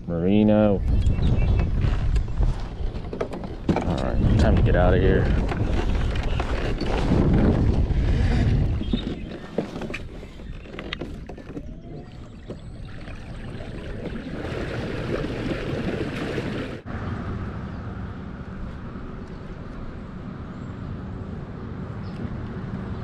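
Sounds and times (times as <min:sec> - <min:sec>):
wind buffeting microphone: 0:00.8 - 0:16.9.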